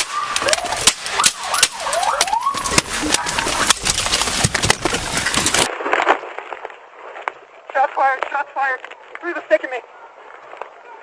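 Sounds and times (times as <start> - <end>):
police siren wailing: 0.0 - 3.7
sharp cracks: 0.0 - 7.4.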